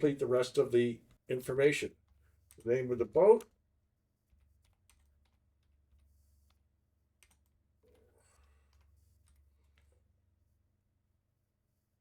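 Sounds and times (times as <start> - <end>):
keyboard typing: 4.3 - 6.0, 7.2 - 8.0.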